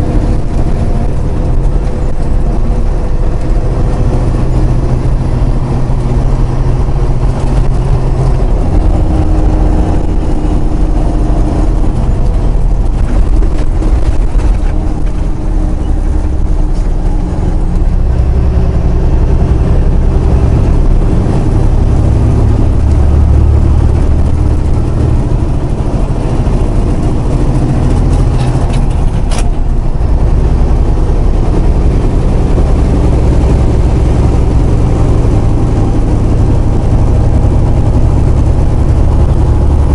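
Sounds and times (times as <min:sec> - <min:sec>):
road noise: 0:00.0 - 0:39.9
truck diesel engine: 0:00.0 - 0:39.9.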